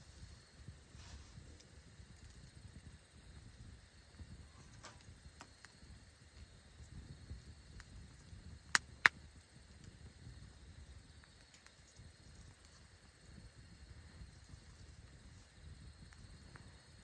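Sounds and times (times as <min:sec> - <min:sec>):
campfire crackling: 0:05.0 - 0:17.0.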